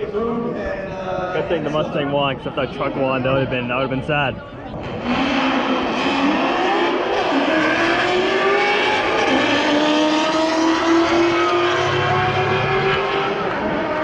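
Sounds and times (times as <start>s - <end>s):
cars racing at full throttle: 1.4s - 14.0s.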